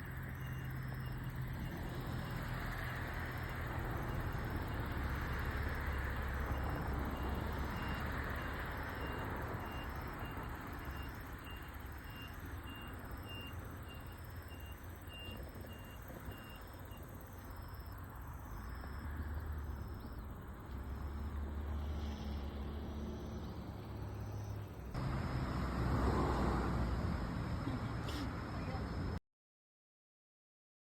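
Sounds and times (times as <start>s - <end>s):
road traffic rumble: 0.0s - 29.2s
faint high beeps: 0.3s - 1.8s, 5.9s - 18.7s.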